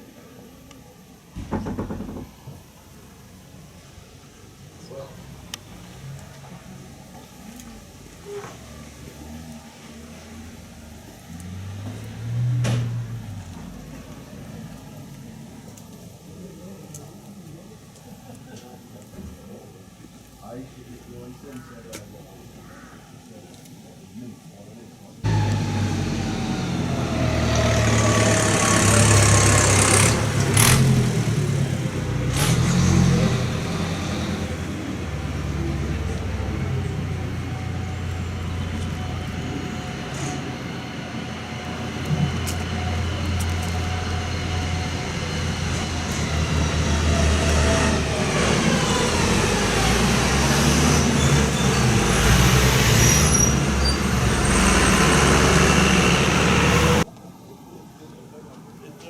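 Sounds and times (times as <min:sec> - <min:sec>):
tractor engine running: 0:25.3 - 0:52.9, 0:53.6 - 0:57.1.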